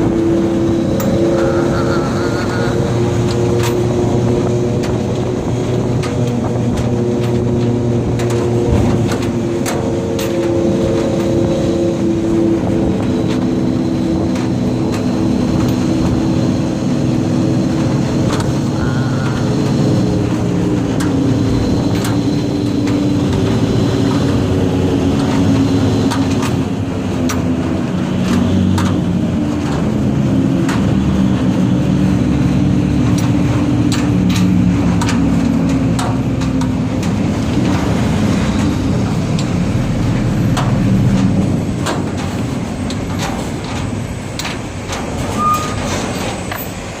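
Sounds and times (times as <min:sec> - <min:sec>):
truck diesel engine running: 0:00.0 - 0:47.0.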